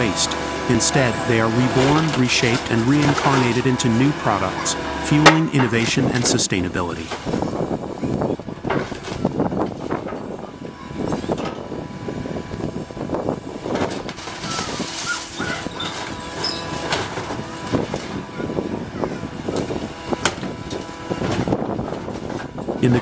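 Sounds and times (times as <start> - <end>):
machinery engine hum: 0.0 - 14.4, 15.2 - 23.0.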